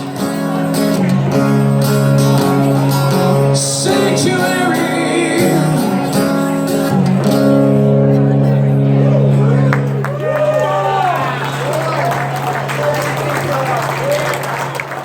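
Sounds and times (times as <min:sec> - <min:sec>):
strummed guitar chords: 0:00.0 - 0:10.1
person singing: 0:02.4 - 0:07.1.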